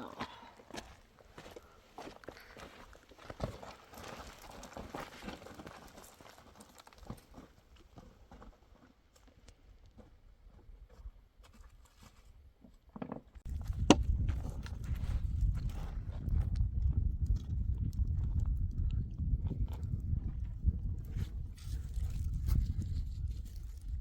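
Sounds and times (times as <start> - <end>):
footsteps on rocky ground: 0.0 - 12.2, 13.4 - 24.0.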